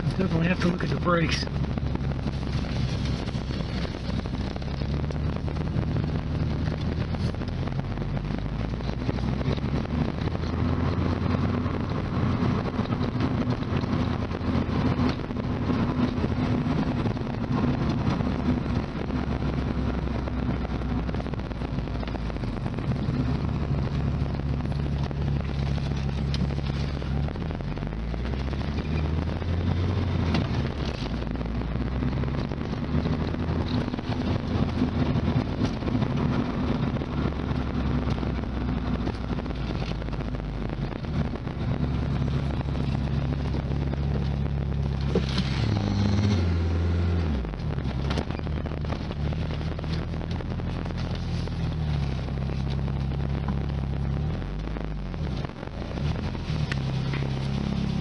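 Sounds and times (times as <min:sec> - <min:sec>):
car engine running: 0:00.0 - 0:58.0
road and wind noise: 0:00.0 - 0:58.0.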